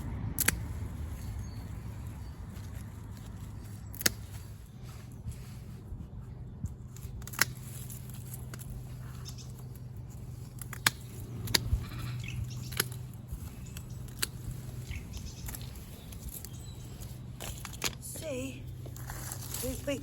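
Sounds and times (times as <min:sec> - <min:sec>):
sharp snips of plant stems: 0:00.3 - 0:00.8, 0:03.7 - 0:04.5, 0:06.9 - 0:09.6, 0:10.4 - 0:18.0.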